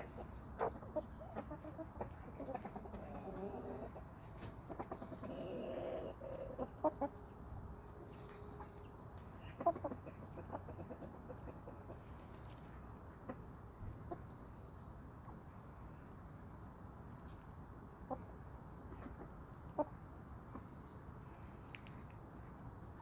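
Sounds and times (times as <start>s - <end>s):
chickens clucking: 0.0s - 14.4s, 18.0s - 20.7s.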